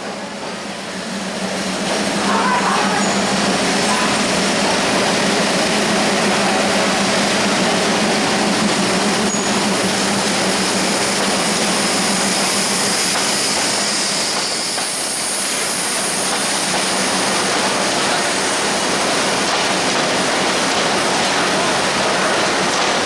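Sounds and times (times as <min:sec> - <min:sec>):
freight train rumbling past: 0:00.0 - 0:23.0
high wheel squeal: 0:09.2 - 0:09.9.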